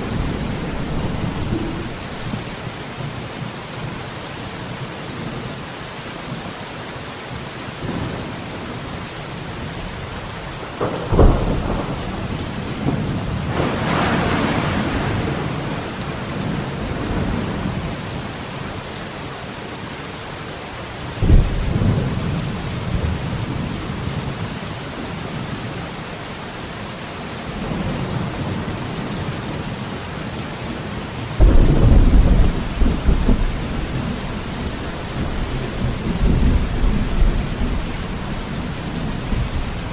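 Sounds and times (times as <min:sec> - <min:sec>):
thunder claps and rumble: 0:00.0 - 0:02.6, 0:10.6 - 0:18.3, 0:21.2 - 0:24.5, 0:31.4 - 0:39.9
heavy rain on foliage: 0:00.0 - 0:39.9.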